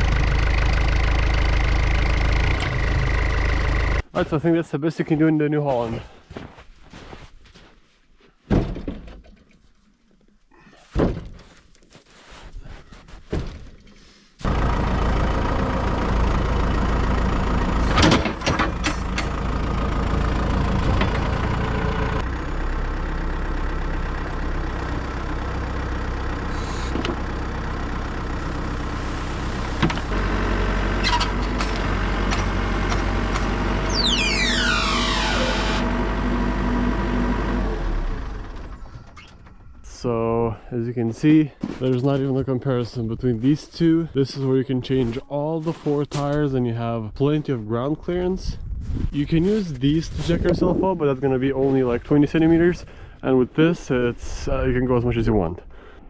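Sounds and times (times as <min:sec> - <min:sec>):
diesel engine running: 0:00.0 - 0:04.2, 0:14.4 - 0:40.0
metal clanks: 0:17.8 - 0:19.4
whine falling in pitch: 0:33.8 - 0:36.6.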